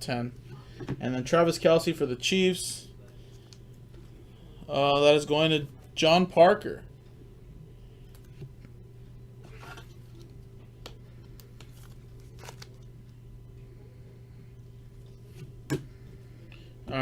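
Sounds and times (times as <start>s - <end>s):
low electrical hum: 0.0s - 17.0s
packaging rustling: 11.2s - 12.9s.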